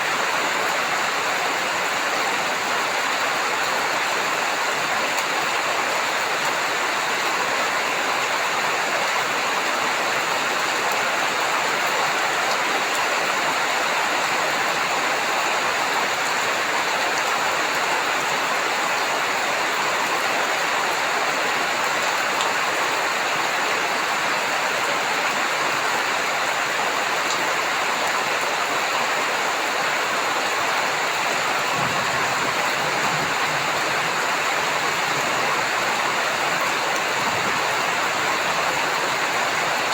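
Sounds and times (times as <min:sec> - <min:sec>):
heavy rain: 0:00.0 - 0:39.9
low thunder rumble: 0:31.6 - 0:36.4.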